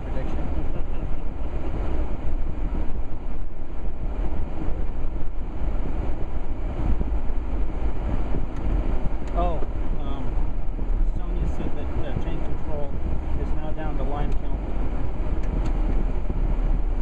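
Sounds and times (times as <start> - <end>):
vehicle engine and tyre noise: 0.0 - 17.0.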